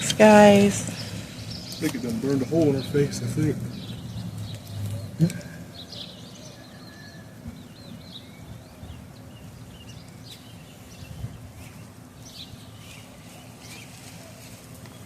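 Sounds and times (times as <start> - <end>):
low background rumble: 0.0 - 6.6
birds chirping and warbling: 0.0 - 15.0.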